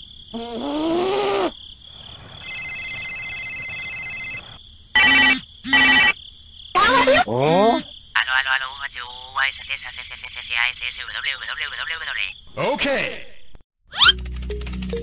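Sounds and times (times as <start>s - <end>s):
electronic phone ringtone: 2.4s - 6.2s
cartoon-style gliding voice sounds: 6.8s - 8.6s.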